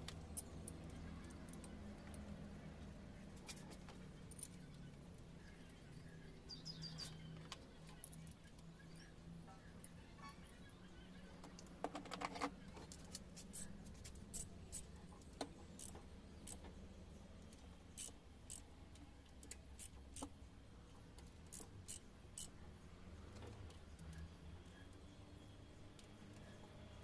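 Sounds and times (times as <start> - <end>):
metallic clicks of tools: 12.2 - 16.7, 17.4 - 20.4, 21.2 - 22.6.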